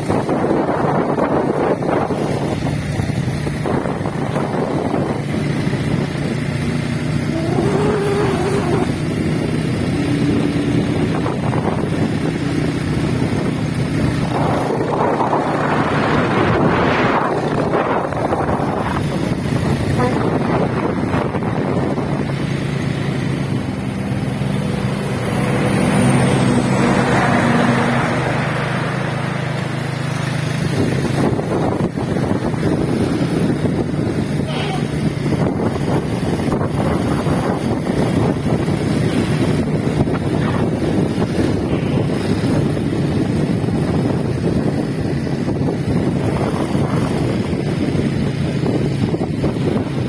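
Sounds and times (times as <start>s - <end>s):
low rumbling noise with hum: 0.0s - 50.0s
rushing wind: 0.0s - 50.0s
motor humming: 7.2s - 9.3s.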